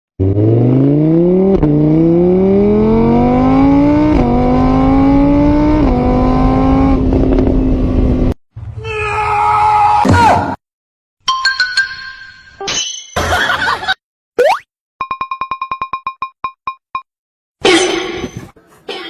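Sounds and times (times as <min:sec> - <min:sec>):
car engine accelerating: 0:00.2 - 0:08.4.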